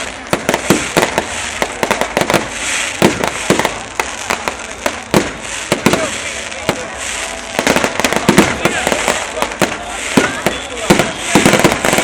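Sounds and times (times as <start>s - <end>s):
fireworks crackling: 0.0s - 12.0s
fireworks shells exploding: 0.0s - 12.0s.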